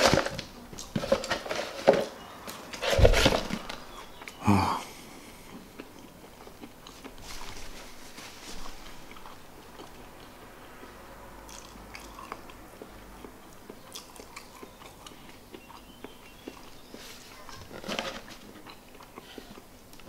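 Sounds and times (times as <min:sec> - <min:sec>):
person chewing food: 0:02.4 - 0:20.0.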